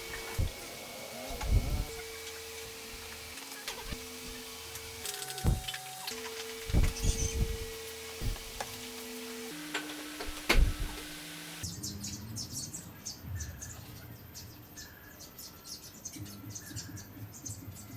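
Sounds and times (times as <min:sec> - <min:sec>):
small birds chirping: 0:06.5 - 0:09.2.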